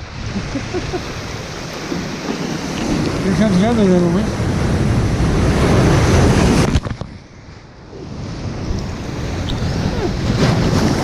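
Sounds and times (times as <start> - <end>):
ocean waves breaking: 0.0 - 11.0
wind on microphone: 0.0 - 11.0.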